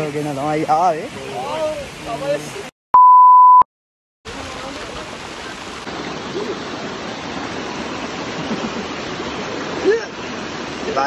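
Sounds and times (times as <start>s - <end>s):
loud steady beep: 3.0s - 3.6s
waterfall rushing into stream: 4.3s - 11.0s.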